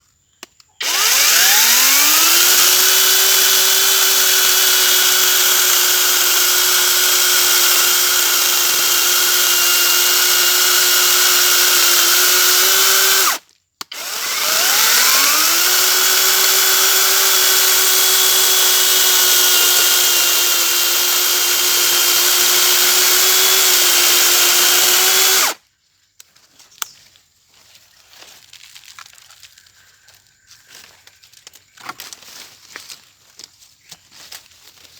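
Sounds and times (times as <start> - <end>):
electric chainsaw whining: 0.8 - 25.6.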